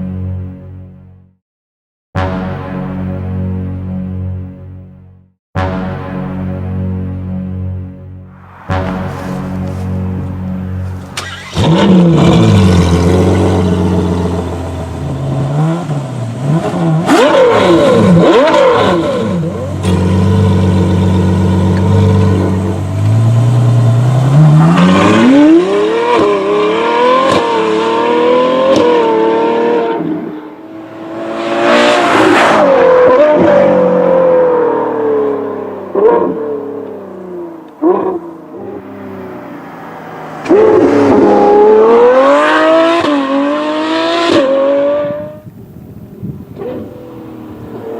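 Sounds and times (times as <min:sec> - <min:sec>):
car engine revving: 0:08.3 - 0:45.4
exhaust pops: 0:08.7 - 0:12.1.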